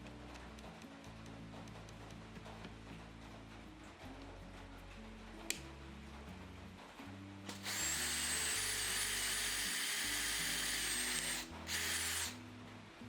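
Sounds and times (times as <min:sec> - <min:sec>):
background music: 0:00.0 - 0:13.0
power tool whining: 0:07.5 - 0:12.4.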